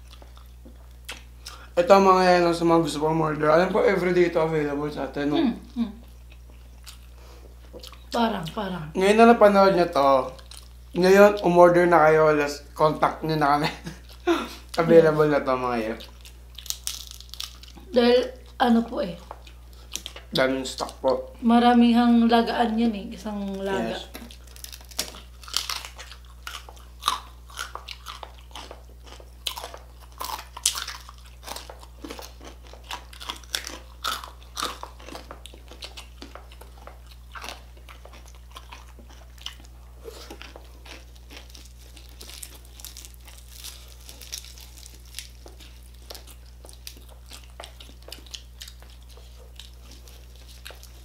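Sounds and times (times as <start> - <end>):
crispy skin crunching: 15.8 - 17.9, 23.7 - 51.0.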